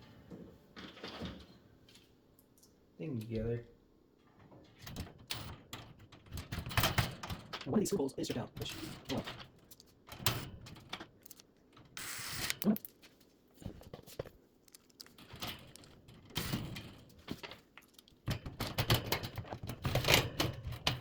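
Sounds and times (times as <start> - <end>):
metal parts clicking and rattling: 4.9 - 13.1, 14.2 - 21.0.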